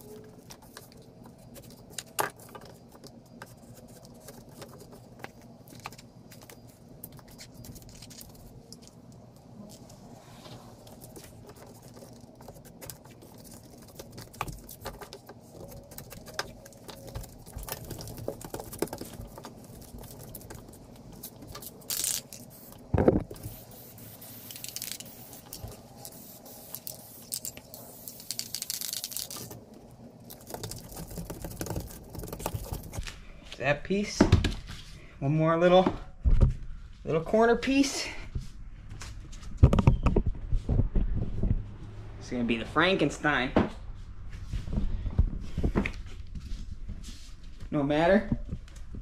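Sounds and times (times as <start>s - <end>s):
hands scraping and tapping foam: 10.9s - 21.6s, 30.3s - 33.1s
hissing rustling noise: 19.2s - 29.4s.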